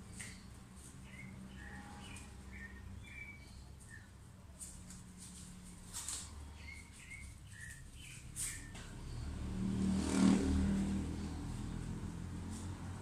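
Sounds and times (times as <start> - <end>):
vehicle passing by: 0.0 - 3.6, 4.8 - 13.0
bird chirps: 0.1 - 4.2, 6.4 - 9.4.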